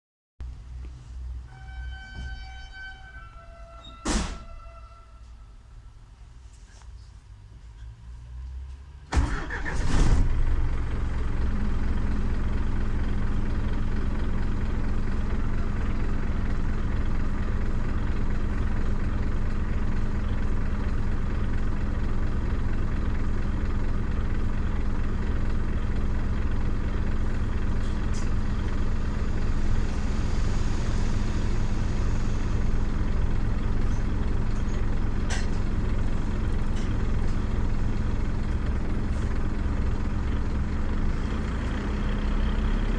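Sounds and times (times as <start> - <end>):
bus diesel engine droning: 0.4 - 42.9
engine knocks: 9.1 - 42.9.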